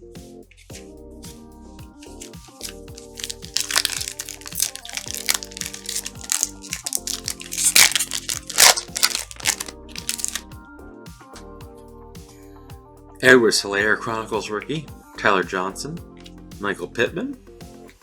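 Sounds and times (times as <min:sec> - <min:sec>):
background music: 0:00.0 - 0:18.0
plastic wrappers crinkling: 0:02.0 - 0:10.4.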